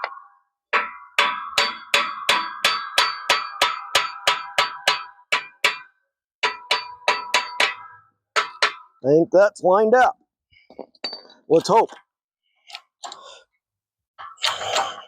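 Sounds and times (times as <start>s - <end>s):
hammer striking steel parts: 0.0s - 9.0s.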